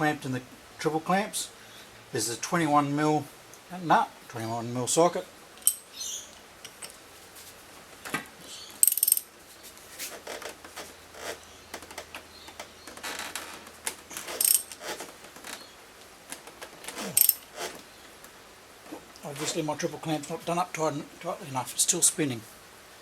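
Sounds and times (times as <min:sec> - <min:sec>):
socket ratchet clicking: 0:05.6 - 0:05.9, 0:08.8 - 0:09.3, 0:14.3 - 0:15.0, 0:17.2 - 0:17.5
steel tools clinking: 0:05.6 - 0:05.9, 0:06.6 - 0:07.0, 0:08.8 - 0:09.3, 0:14.3 - 0:14.9, 0:17.1 - 0:17.5.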